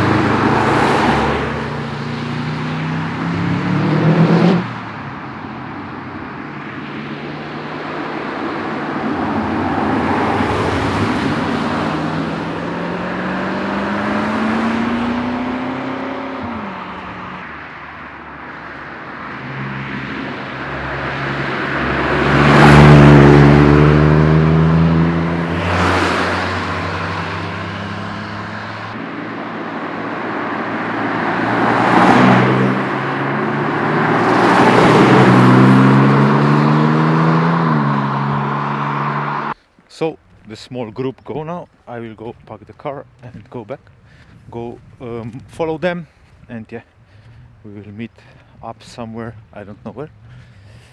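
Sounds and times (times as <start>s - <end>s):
cars accelerating past: 0.0s - 39.6s.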